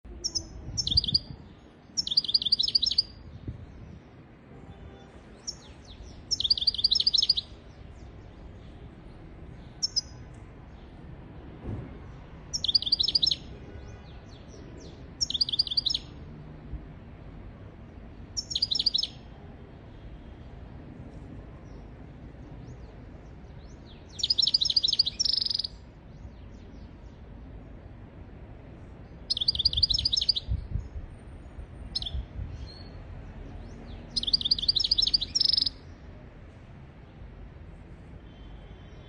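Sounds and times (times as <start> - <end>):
low background noise: 0.0 - 39.0
goldfinch twittering trills: 34.2 - 35.7.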